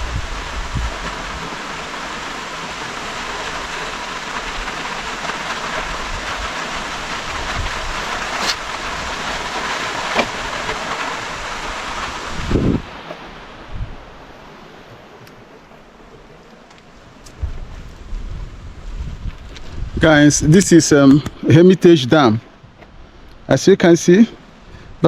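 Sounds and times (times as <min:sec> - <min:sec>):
water rushing at a dam: 0:00.0 - 0:17.5.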